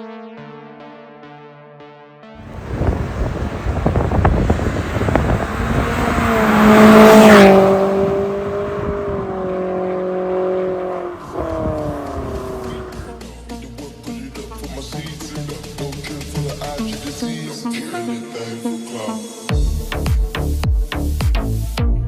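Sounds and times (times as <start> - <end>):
car exhaust with crackles: 2.4 - 13.3.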